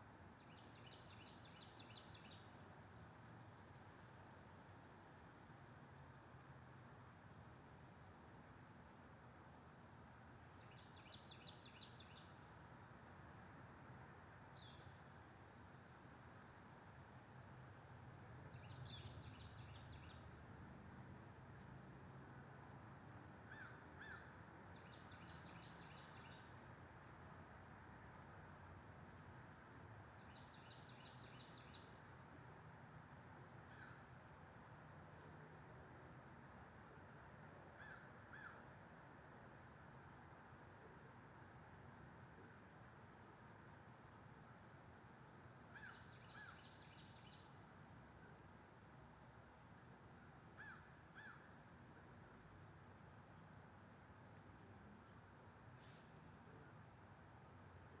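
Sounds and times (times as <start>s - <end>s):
faint wind hiss: 0.0s - 58.0s
songbird singing: 0.3s - 2.7s, 10.5s - 12.6s, 14.2s - 15.4s, 17.6s - 20.6s, 23.5s - 27.2s, 30.0s - 32.2s, 37.8s - 38.7s, 41.0s - 48.6s, 50.2s - 58.0s
small bird calling: 23.5s - 24.3s, 37.8s - 38.6s, 45.7s - 47.3s, 50.6s - 51.5s.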